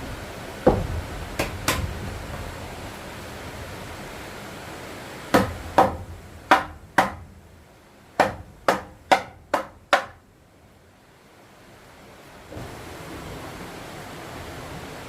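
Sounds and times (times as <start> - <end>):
tool knocking on wood: 0.7 - 1.9, 5.4 - 7.3, 8.2 - 10.2.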